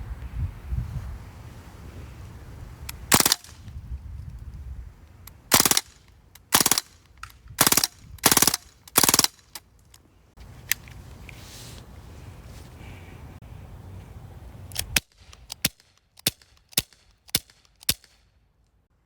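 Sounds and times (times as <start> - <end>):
bb gun firing: 3.1 - 3.6, 5.5 - 9.6.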